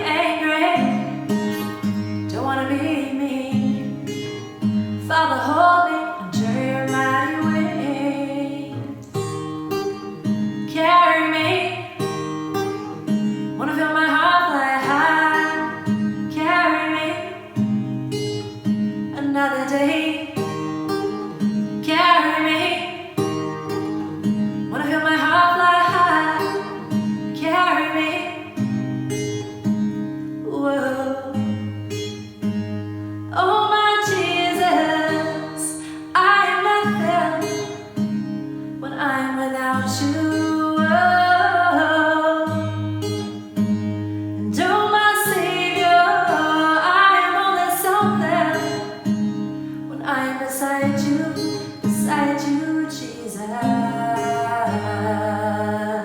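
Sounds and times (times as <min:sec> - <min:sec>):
guitar chords: 0:00.0 - 0:56.0
woman singing slowly: 0:05.0 - 0:09.1, 0:21.8 - 0:23.2, 0:24.7 - 0:28.6, 0:30.4 - 0:31.6, 0:33.3 - 0:37.9, 0:38.8 - 0:43.0, 0:44.4 - 0:49.0, 0:49.9 - 0:56.0.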